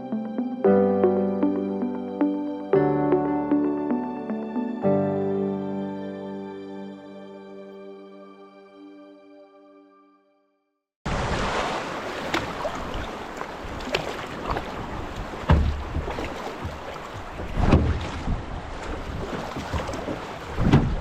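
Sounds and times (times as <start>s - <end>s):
rushing water: 11.1s - 21.0s
wind buffeting microphone: 12.9s - 21.0s
sharp knocks: 15.5s - 16.2s.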